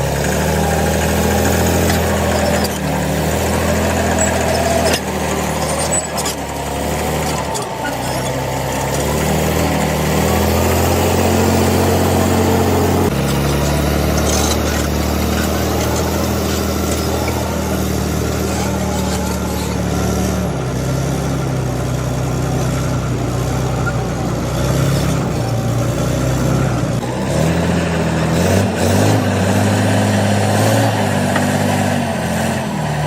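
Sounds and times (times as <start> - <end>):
bulldozer diesel engine running: 0.0 - 33.0.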